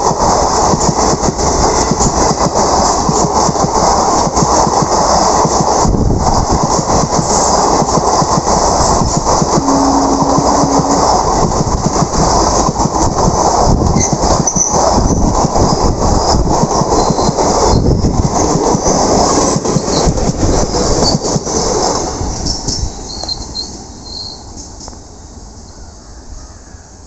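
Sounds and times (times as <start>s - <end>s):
train rumbling past: 0.0s - 27.0s
high wheel squeals: 22.4s - 24.6s.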